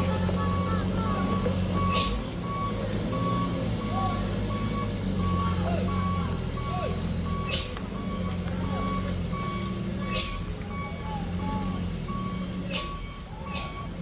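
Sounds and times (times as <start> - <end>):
diesel engine running: 0.0 - 14.0
truck reversing alarm beeping: 0.0 - 14.0
air brake hiss: 10.1 - 10.4.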